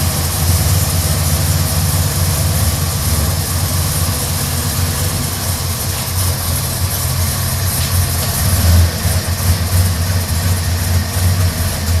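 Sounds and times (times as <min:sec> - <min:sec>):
pickup truck vee eight idling: 0:00.0 - 0:12.0.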